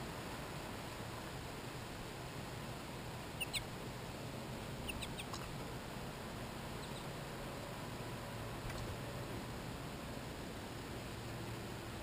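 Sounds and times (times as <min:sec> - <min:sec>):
steady hiss: 0:00.0 - 0:12.0
high bird call notes: 0:03.4 - 0:03.7, 0:04.8 - 0:05.4, 0:06.8 - 0:07.1.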